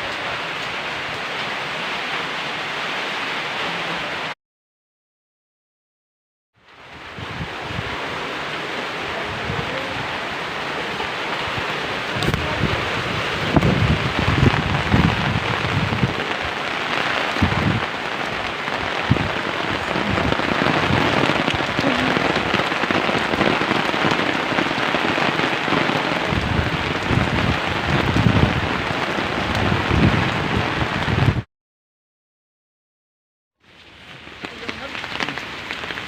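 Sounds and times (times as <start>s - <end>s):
heavy rain pouring: 0.0s - 4.4s, 6.6s - 31.5s, 33.6s - 36.0s
low rumbles: 9.0s - 23.6s.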